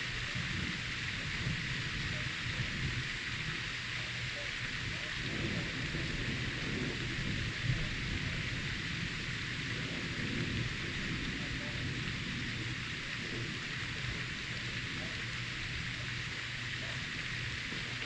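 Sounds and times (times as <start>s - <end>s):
heavy rain hissing: 0.0s - 18.0s
thunder rumbling: 0.0s - 18.0s.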